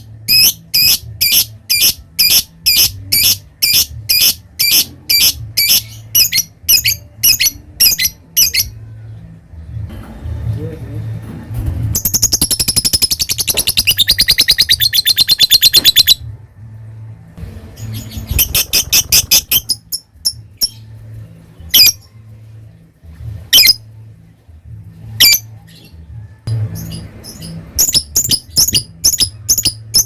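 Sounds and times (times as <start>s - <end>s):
lovebird chattering: 0.3s - 8.7s, 12.0s - 16.2s, 18.3s - 20.8s.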